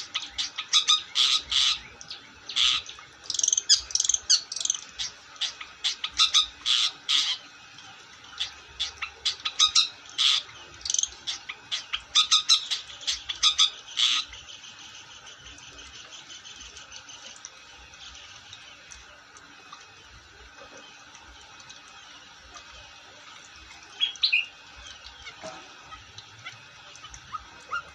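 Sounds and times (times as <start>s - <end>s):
bird twittering chatter: 8.4s - 15.3s, 23.9s - 25.4s.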